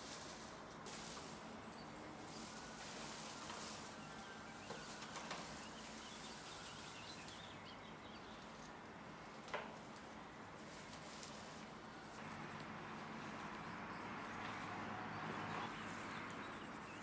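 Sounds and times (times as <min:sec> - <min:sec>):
faint background noise: 0:00.0 - 0:17.0
faint bird chirps: 0:03.8 - 0:08.7.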